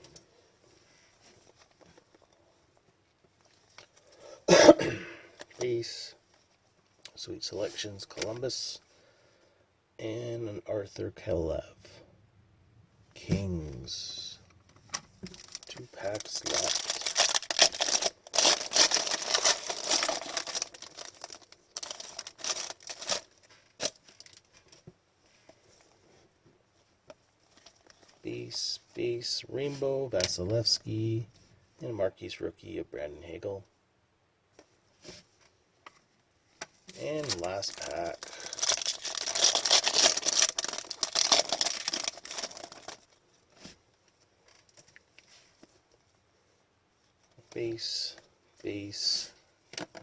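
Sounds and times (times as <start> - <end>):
wrapper tearing and crinkling: 15.2 - 24.5, 37.2 - 43.2.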